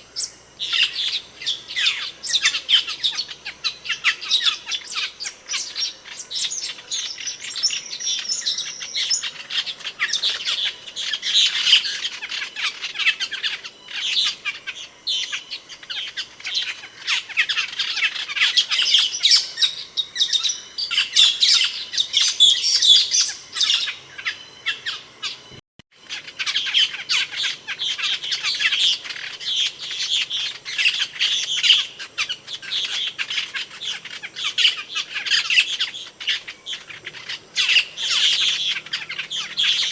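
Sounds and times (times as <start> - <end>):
starlings chirping and squawking: 0.0 - 39.9.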